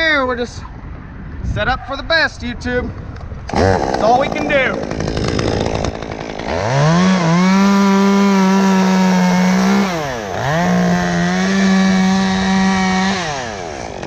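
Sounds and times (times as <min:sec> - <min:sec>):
chainsaw revving: 0:03.5 - 0:14.0.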